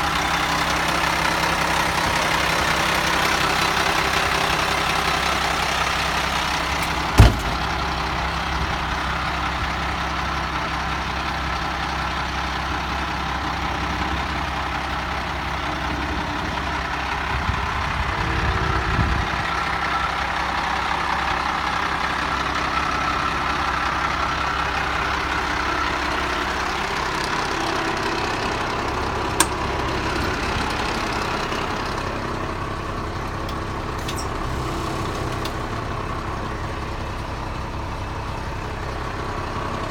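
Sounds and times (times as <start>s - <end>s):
diesel truck engine idling: 0.0s - 39.9s
sharp knock: 6.8s - 7.7s.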